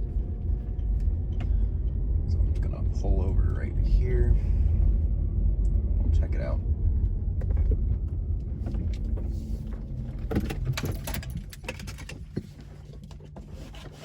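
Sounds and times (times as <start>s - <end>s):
road rumble: 0.0s - 14.0s
clicks and rattles inside car: 6.1s - 14.0s.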